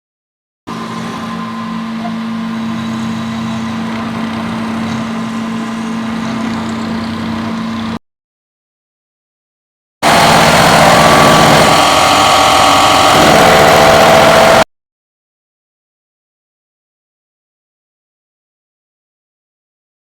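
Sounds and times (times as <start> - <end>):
milling machine humming: 0.7 - 8.0, 10.0 - 14.6.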